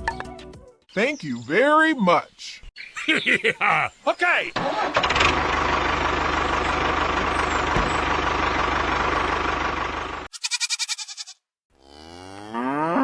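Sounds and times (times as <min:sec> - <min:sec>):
tractor engine chugging: 0:05.0 - 0:10.5.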